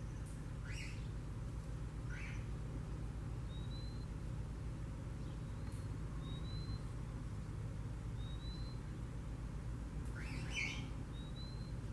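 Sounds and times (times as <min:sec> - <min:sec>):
bird chirp: 0:00.0 - 0:01.2, 0:02.0 - 0:02.5, 0:03.4 - 0:04.2, 0:05.1 - 0:07.0, 0:08.1 - 0:09.1, 0:10.1 - 0:11.9.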